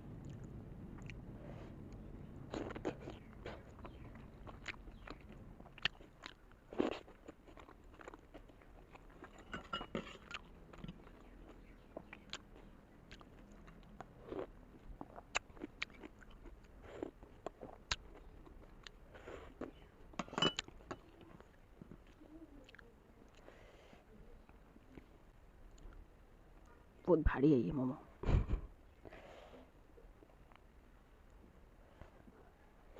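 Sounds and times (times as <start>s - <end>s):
person chewing food: 0.1s - 23.5s, 24.5s - 26.0s.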